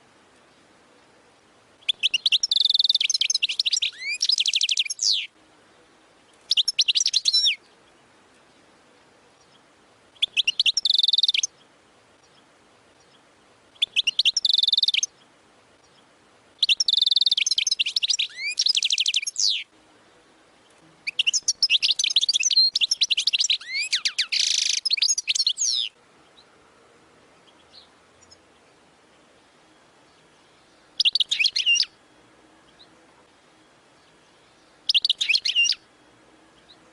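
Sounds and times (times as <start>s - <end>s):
goldfinch singing trills: 1.8s - 5.3s, 6.3s - 8.6s, 9.4s - 19.7s, 20.6s - 26.5s, 27.4s - 32.0s, 33.9s - 35.9s.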